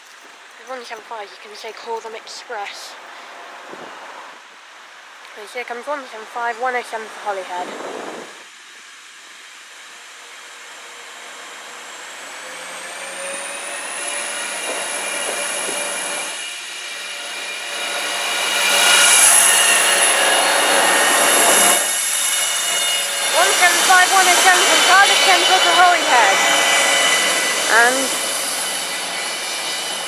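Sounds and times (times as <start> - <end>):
diesel train engine approaching: 6.1 - 30.0
rising whine: 7.1 - 30.0.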